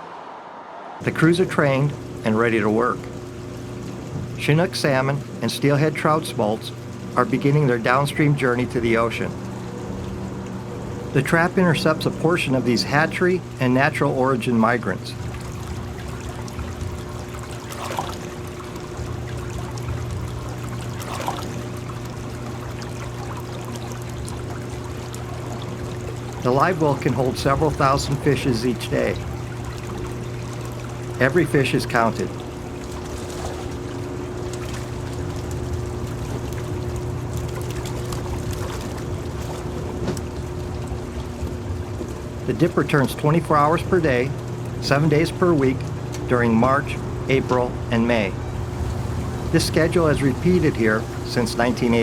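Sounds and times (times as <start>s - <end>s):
low steady hum: 0.0s - 52.0s
water rushing and splashing: 0.0s - 52.0s
louder water splashes: 15.3s - 39.9s, 48.4s - 52.0s.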